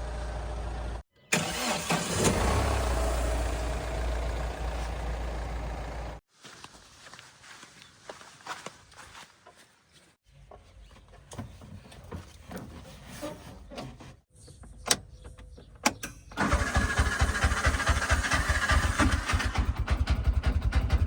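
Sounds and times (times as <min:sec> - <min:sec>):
faint low engine rumble: 0:00.0 - 0:01.0, 0:02.4 - 0:06.2
diesel engine running: 0:00.0 - 0:06.2, 0:16.3 - 0:21.0.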